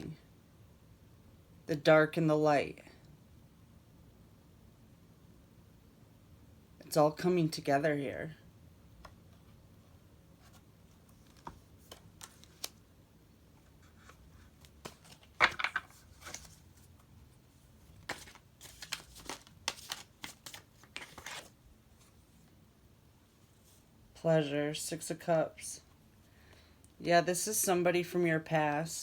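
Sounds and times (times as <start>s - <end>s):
cards clicking and swishing: 11.2s - 12.8s, 18.0s - 21.5s.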